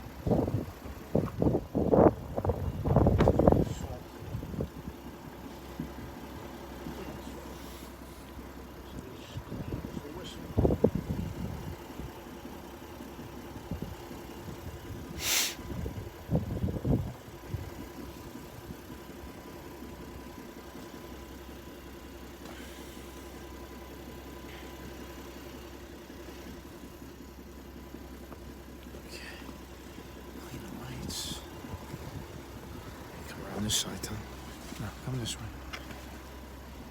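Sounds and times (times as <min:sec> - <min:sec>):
truck engine idling: 0:00.0 - 0:36.9
loud hiss: 0:15.2 - 0:15.6.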